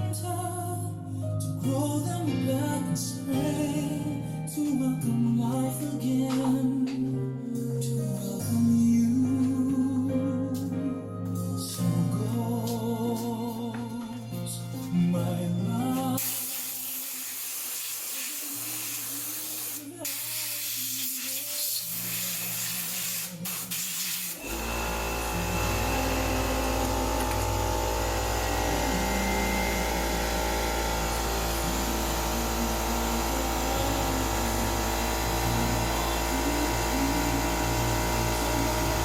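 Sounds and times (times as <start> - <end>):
machine humming low: 24.4 - 39.0.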